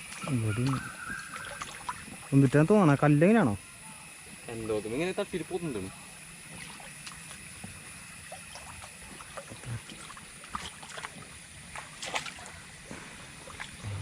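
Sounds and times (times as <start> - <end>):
small water splashes: 0.0 - 2.7, 6.4 - 13.8
water trickling in a drain: 0.0 - 5.0, 6.4 - 12.7.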